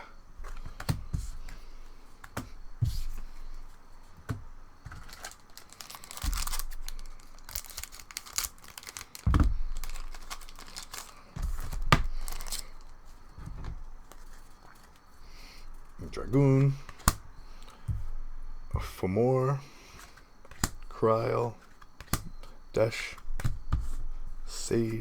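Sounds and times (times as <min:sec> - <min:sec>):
foil pack tearing and crinkling: 0:04.9 - 0:13.0.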